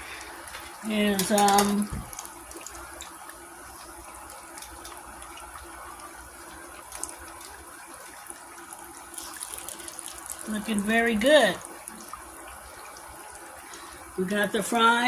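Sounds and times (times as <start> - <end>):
chicken frying in hot oil: 0.0 - 15.0.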